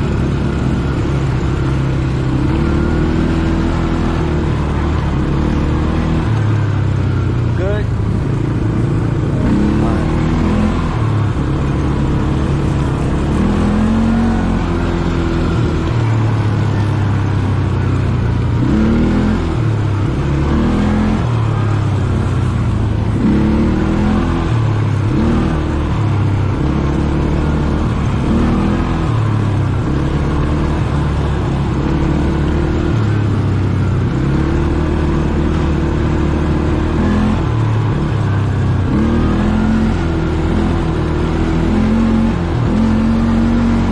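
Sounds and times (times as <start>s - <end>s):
atv engine revving: 0.0s - 43.9s.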